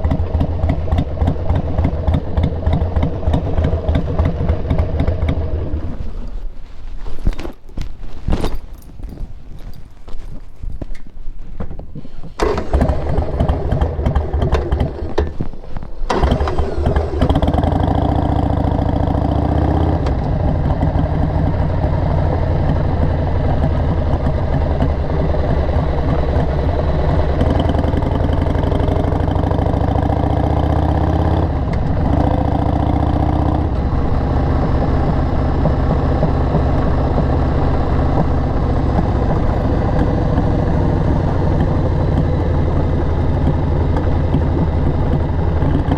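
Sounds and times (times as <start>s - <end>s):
motorcycle engine running: 0.0s - 6.3s, 11.6s - 45.9s.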